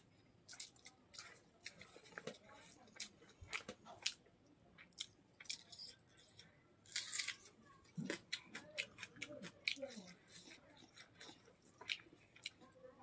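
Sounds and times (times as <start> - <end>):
crunchy chewing: 0.0 - 12.9
wet chewing mouth clicks: 8.0 - 12.6.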